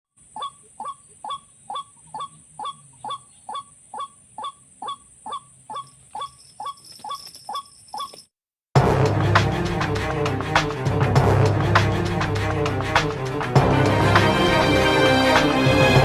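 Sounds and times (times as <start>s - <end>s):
bird harsh calls: 0.2s - 8.3s.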